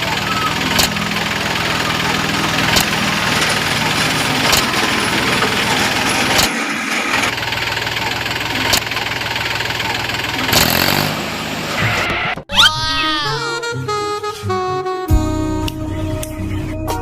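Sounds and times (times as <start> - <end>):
small tractor engine running: 0.0 - 12.3
sharp clicks: 0.7 - 1.0.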